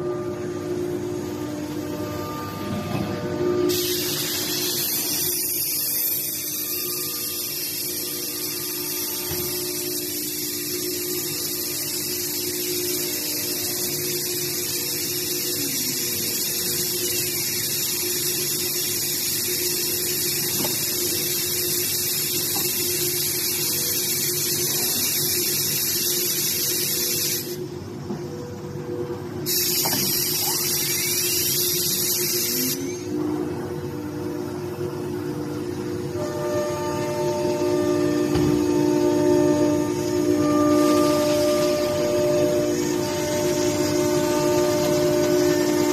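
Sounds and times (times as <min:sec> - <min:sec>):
high machine hiss: 0:00.0 - 0:28.0, 0:29.4 - 0:33.3, 0:33.9 - 0:45.9
constant machine hum: 0:00.0 - 0:45.9.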